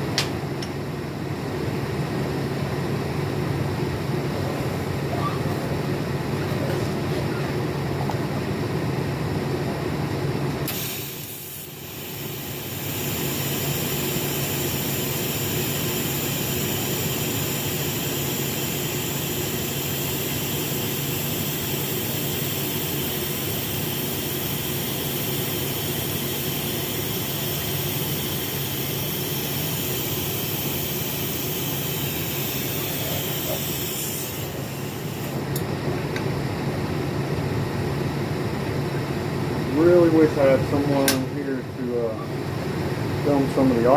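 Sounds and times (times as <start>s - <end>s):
low background hum: 0.0s - 43.9s
welding arc hissing: 10.6s - 35.6s.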